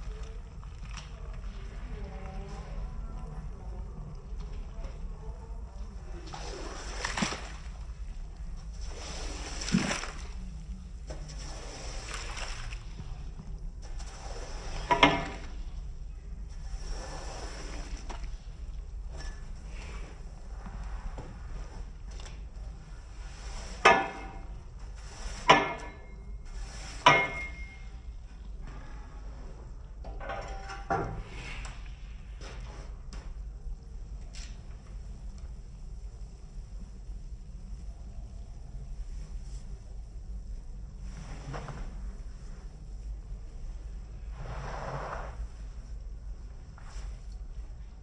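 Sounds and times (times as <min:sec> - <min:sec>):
water sloshing and splashing: 0:00.0 - 0:29.9
low steady hum: 0:00.0 - 0:48.0.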